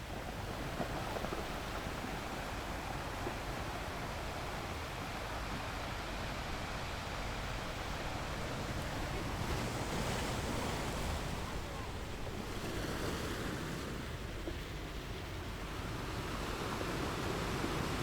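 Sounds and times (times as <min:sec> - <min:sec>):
sea waves breaking on shore: 0:00.0 - 0:18.0.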